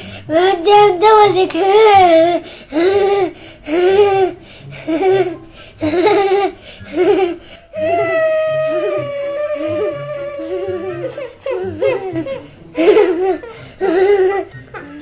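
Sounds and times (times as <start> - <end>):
steady musical tone: 4.2 - 15.0
child laughing: 4.9 - 15.0.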